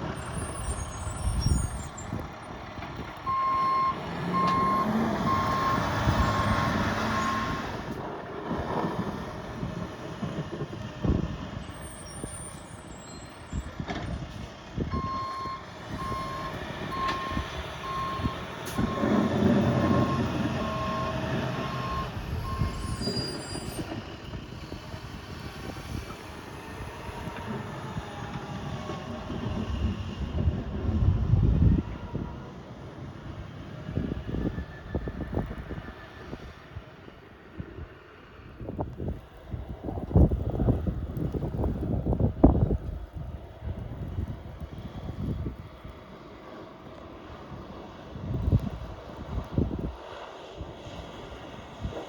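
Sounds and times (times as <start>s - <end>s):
wind noise: 0.0s - 36.8s, 37.6s - 46.1s, 47.3s - 52.0s
engine rumble: 0.0s - 52.0s
reversing alarm beeping: 3.3s - 7.6s, 15.0s - 23.8s.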